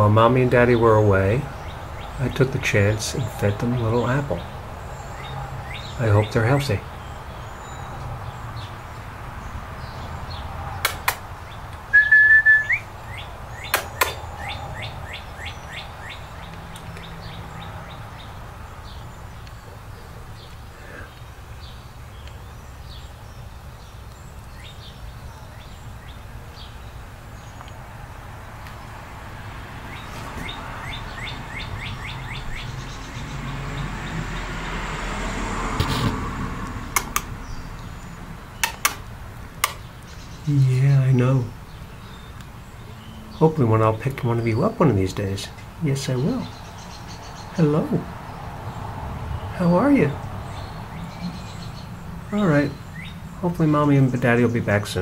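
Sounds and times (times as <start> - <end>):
bird chirping: 0.0 - 55.0
sharp clicks: 10.8 - 11.8, 13.6 - 14.3, 35.8 - 37.4, 38.6 - 40.2
bird whistle sweeping upward: 11.9 - 13.7
short high bird chirps: 11.9 - 15.8.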